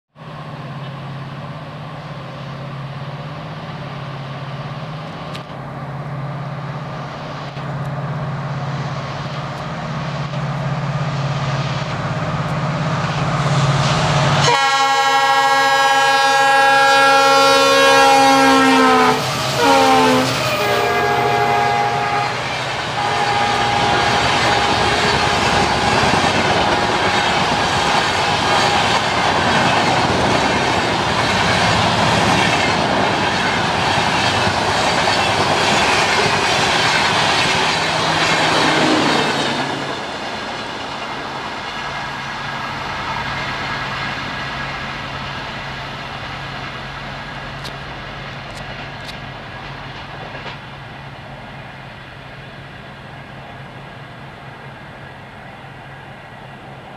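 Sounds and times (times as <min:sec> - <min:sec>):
locomotive rumble: 0:00.2 - 0:56.9
locomotive horn blasts: 0:14.4 - 0:25.8
train wheels clickety-clack: 0:23.7 - 0:43.0, 0:47.4 - 0:50.8.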